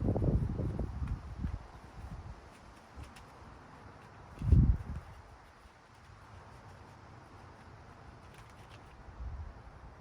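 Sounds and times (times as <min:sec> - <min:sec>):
wind buffeting microphone: 0:00.0 - 0:02.6, 0:04.3 - 0:05.5.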